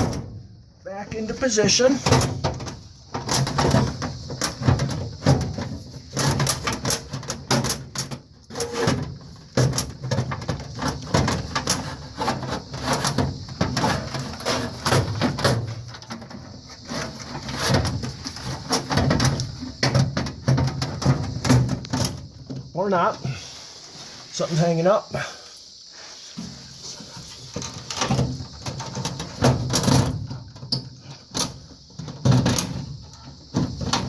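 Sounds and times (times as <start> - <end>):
sheet metal knocks and clanks: 1.7 - 22.6.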